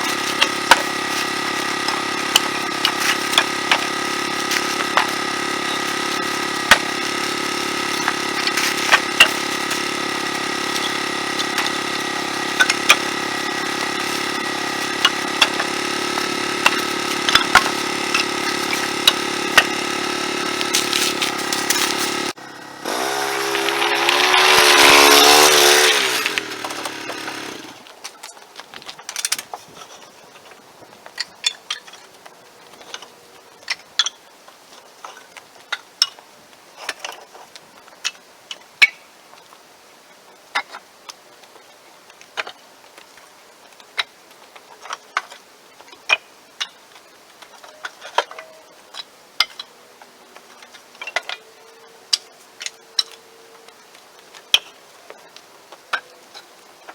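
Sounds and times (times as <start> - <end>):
engine running: 0.0 - 27.9.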